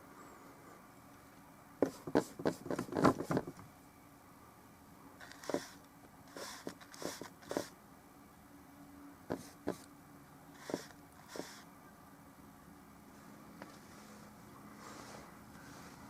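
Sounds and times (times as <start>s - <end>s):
painting tools scraping and knocking: 5.2s - 7.7s, 10.6s - 11.6s.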